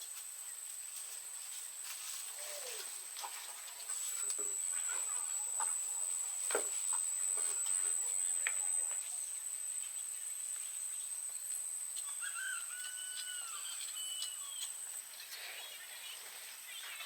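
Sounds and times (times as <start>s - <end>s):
high insect-like whine: 0.0s - 17.0s
whistled bird calls: 12.0s - 14.8s.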